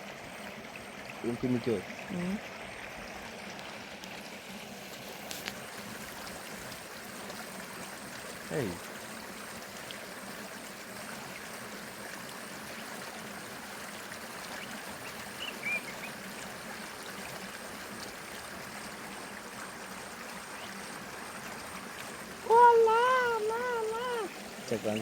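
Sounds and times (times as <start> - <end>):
river water flowing: 0.0 - 25.0
faint chirp: 15.4 - 16.1
loud wavering pitched cry: 22.5 - 24.3.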